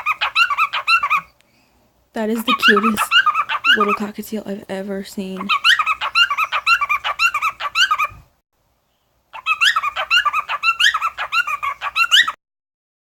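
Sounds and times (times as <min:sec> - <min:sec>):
small bird chirping rapidly: 0:02.2 - 0:04.2, 0:05.2 - 0:08.2, 0:08.9 - 0:12.4.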